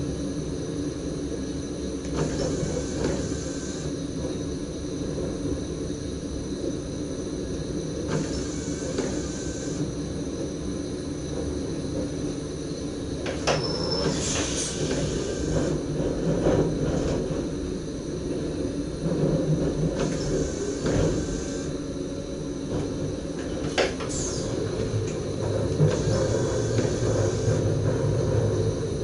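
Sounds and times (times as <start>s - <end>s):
train running gear rumble: 0.0s - 29.0s
clack over rail joint: 13.2s - 17.5s, 19.1s - 21.5s, 22.7s - 28.6s
brief high squeal: 13.5s - 14.9s.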